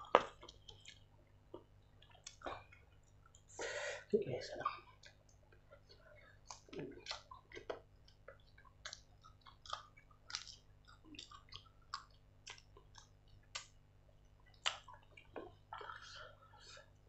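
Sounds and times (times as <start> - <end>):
close chewing: 0.0 - 3.5, 5.0 - 17.0
wet lip smacks and clicks: 0.1 - 3.5, 6.4 - 13.8, 14.4 - 16.1.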